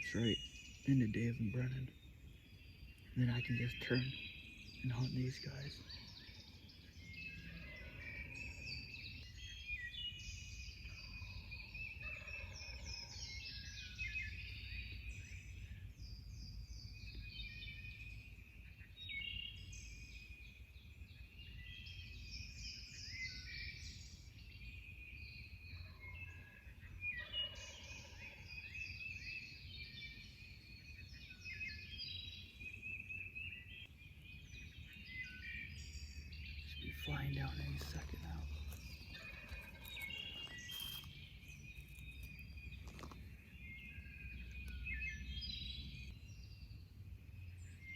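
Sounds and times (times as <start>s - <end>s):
songbirds chirping and trilling: 0.0s - 47.9s
turkeys gobbling: 38.1s - 41.0s.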